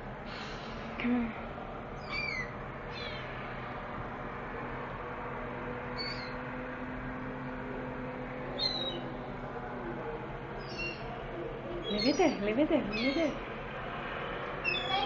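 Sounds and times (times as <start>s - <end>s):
background hum and rushing: 0.0s - 15.0s
gulls mewing cries: 2.0s - 3.3s, 8.6s - 9.1s, 10.6s - 13.4s, 14.6s - 15.0s.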